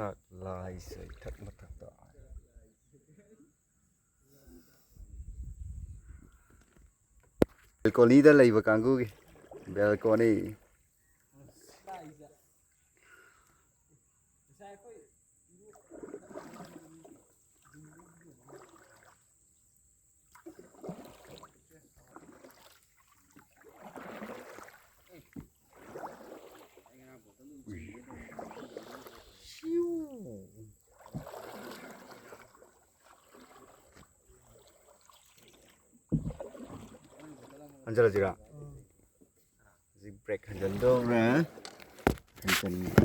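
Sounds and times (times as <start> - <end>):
faint water sounds: 0.0 - 43.0
paddle swishing through water: 0.8 - 2.1, 6.1 - 13.0, 15.6 - 19.6, 20.2 - 30.1, 30.8 - 39.6, 40.4 - 43.0
soft knocks on boat: 25.3 - 25.6, 36.1 - 36.9, 41.7 - 43.0.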